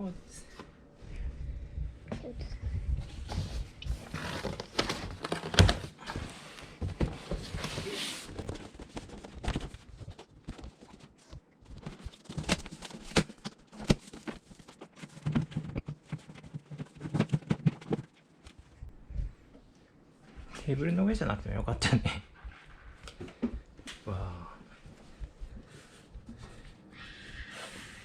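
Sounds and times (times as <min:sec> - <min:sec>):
cardboard rustling: 0:03.1 - 0:18.8
cardboard knocks and scraping: 0:03.2 - 0:10.9.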